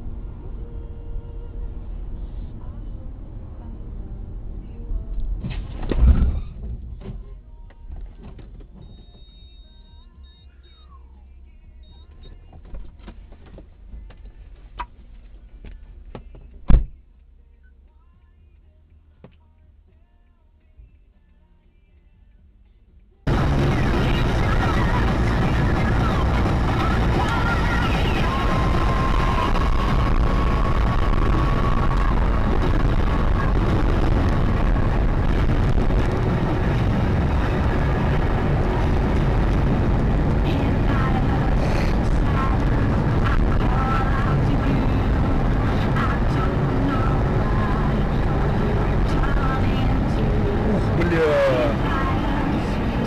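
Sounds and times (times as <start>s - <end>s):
car road and engine rumble: 0.0s - 53.0s
loud thump: 5.4s - 7.2s, 16.2s - 17.0s
faint whistle: 8.8s - 11.2s, 11.8s - 12.4s.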